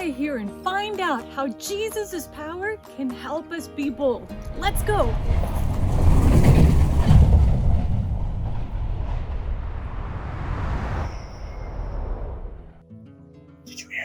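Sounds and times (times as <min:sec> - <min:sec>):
low rumble of train rolling: 0:04.2 - 0:12.8.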